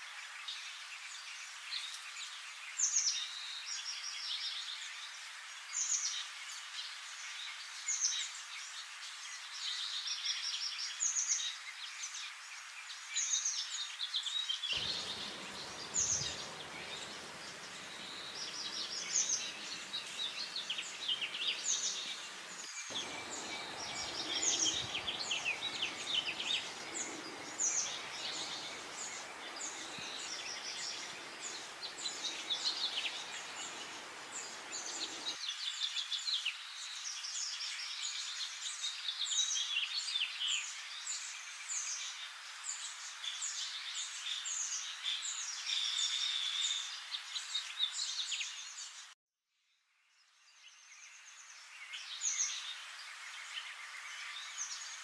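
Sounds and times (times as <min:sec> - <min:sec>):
steady outdoor hiss: 0:00.0 - 0:49.1, 0:50.0 - 0:55.0
songbirds chirping and singing: 0:13.2 - 0:35.7.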